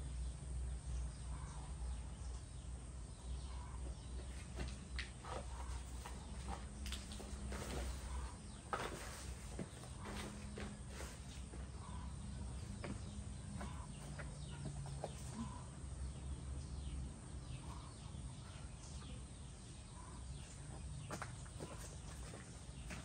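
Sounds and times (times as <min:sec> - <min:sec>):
chickens clucking: 0:03.5 - 0:16.2.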